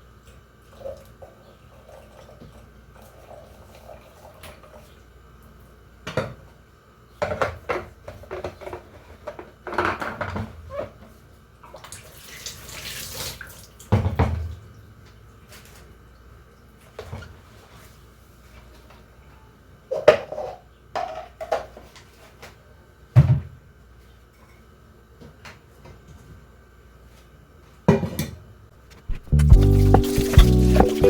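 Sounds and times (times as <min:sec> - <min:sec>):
tap water running: 0:29.0 - 0:31.0.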